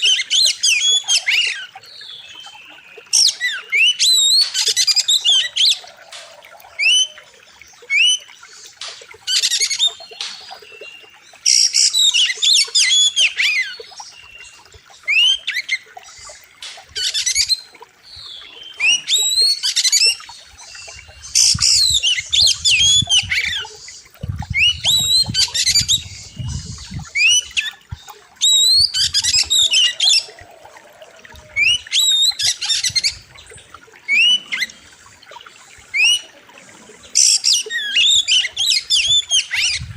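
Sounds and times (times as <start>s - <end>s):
bird singing whistled phrases: 24.6s - 27.7s, 28.4s - 30.4s.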